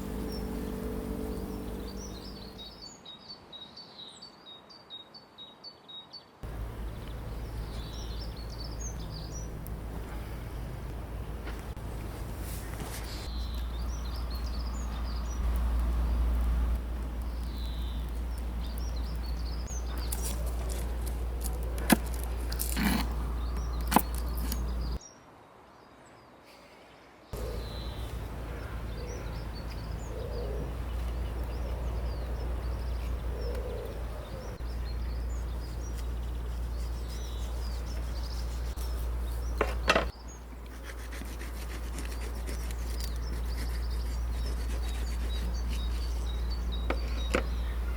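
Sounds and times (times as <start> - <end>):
steady low rumble: 0.0 - 2.7, 6.4 - 25.0
small birds chirping: 0.0 - 4.3, 6.4 - 25.2, 27.3 - 47.9.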